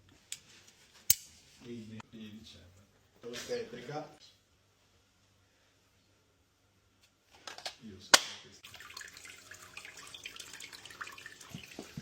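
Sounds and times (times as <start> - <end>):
water spattering and dripping: 8.6 - 12.0.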